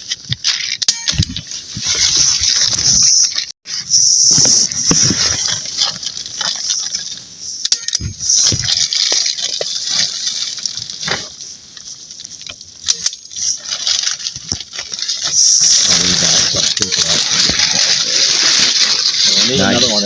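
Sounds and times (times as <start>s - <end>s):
plastic tarp rustling: 1.5s - 7.2s, 8.2s - 11.4s, 13.3s - 20.0s
steady high hiss: 1.5s - 20.0s.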